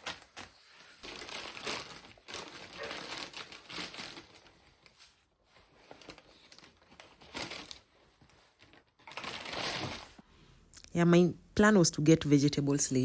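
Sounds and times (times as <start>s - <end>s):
grocery bags crinkling and rustling: 0.0s - 10.2s.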